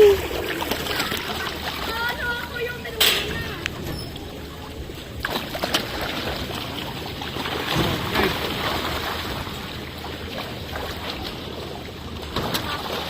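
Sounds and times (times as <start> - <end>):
fish splashing in pond: 5.2 - 13.0.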